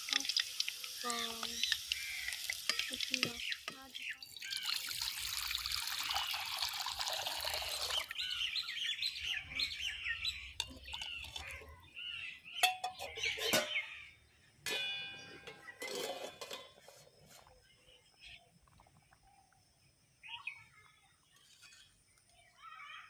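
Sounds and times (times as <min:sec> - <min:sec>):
water running from a tap: 0:00.0 - 0:08.2
small birds chirping: 0:00.0 - 0:23.0.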